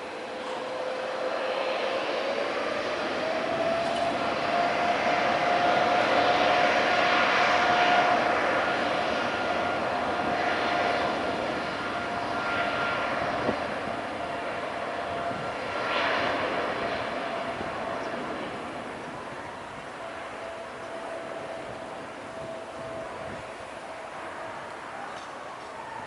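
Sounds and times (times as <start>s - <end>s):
jet airliner engines roaring: 0.0s - 26.0s.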